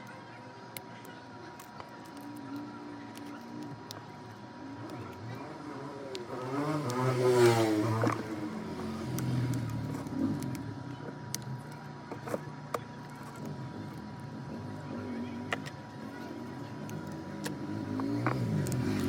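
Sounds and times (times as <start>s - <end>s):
motor vehicle passing: 4.8s - 11.1s, 16.3s - 19.0s.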